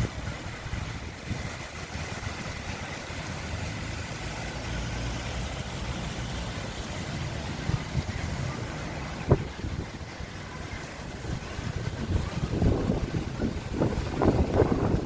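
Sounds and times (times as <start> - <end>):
strong wind gusting on microphone: 0.0 - 2.3, 7.4 - 15.0.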